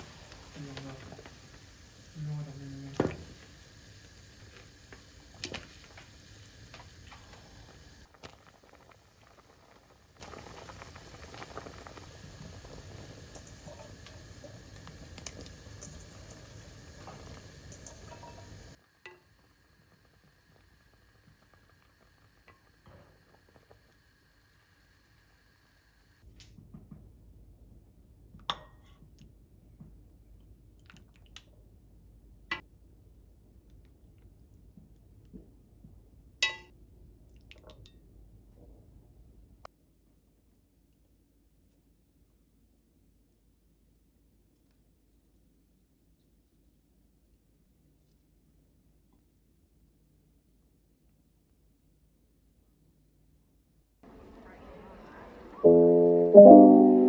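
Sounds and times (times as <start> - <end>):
soup bubbling in a pot: 0.0 - 25.2
soft eating sounds: 30.2 - 31.8.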